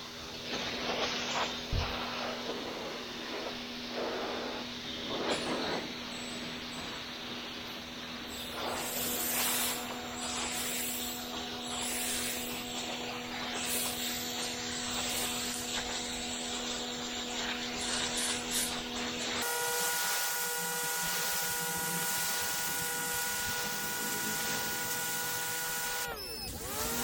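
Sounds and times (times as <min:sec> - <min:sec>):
whining machine tone: 0:03.4 - 0:27.0
water jet hissing on concrete: 0:08.0 - 0:27.0
pressure washer engine running: 0:08.4 - 0:27.0.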